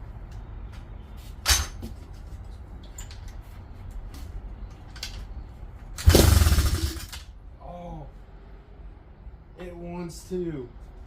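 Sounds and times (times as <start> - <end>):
motorbike engine turning over: 6.0 - 7.3.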